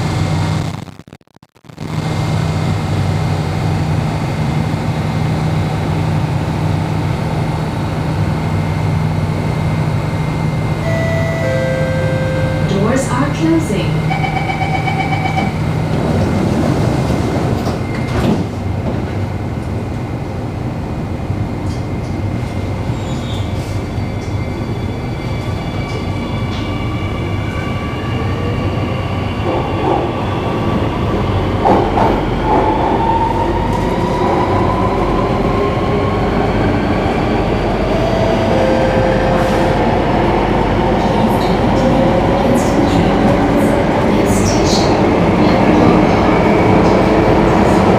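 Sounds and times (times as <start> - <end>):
beeping door chime: 10.8 - 12.9, 14.1 - 15.6
train wheels rumbling on rail: 12.7 - 47.9.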